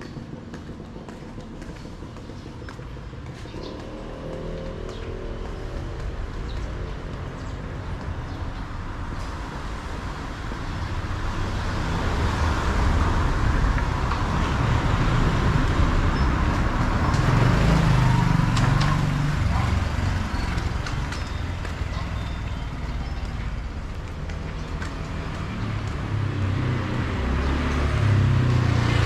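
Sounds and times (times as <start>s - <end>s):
vehicle passing close by: 11.4s - 21.1s.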